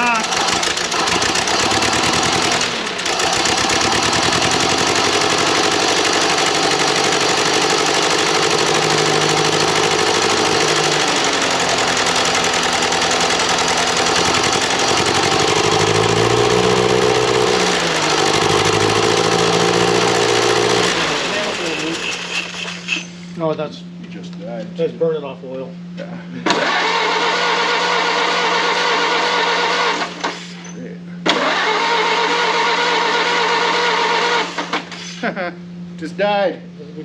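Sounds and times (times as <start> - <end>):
car engine running: 0.0 - 23.2.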